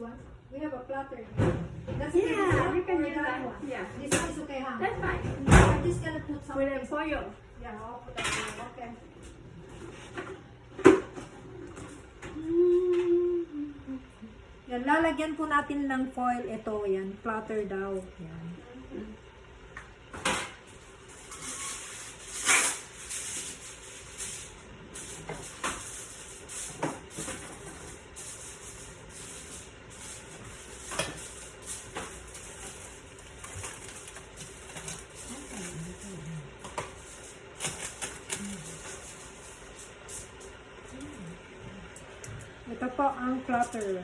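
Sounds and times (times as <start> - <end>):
foil crinkling: 27.8 - 40.5.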